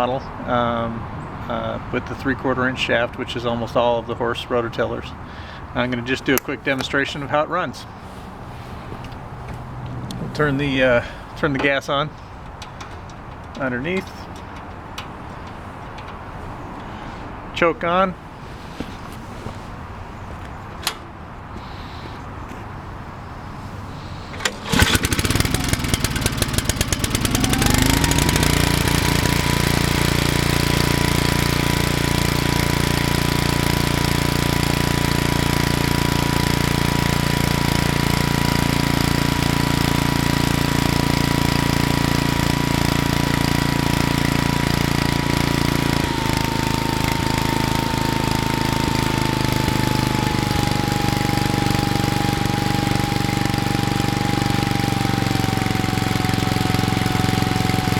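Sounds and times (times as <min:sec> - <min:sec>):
small engine running: 0:24.2 - 0:57.9.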